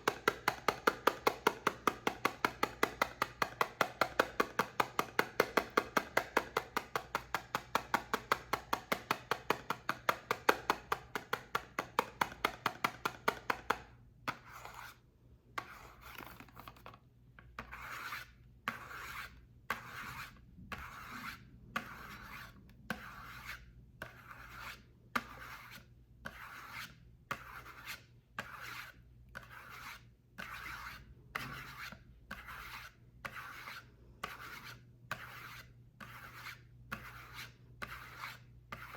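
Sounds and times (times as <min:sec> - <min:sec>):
quick sharp taps on soap: 0:00.0 - 0:13.9
rasping scraping strokes on soap: 0:00.0 - 0:15.0, 0:17.6 - 0:38.9.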